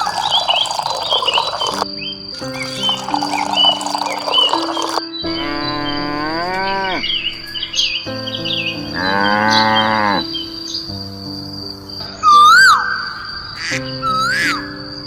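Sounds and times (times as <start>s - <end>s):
loud whistling call: 0.0s - 5.0s, 12.3s - 15.0s
high insect-like tone: 0.0s - 5.1s, 10.9s - 15.0s.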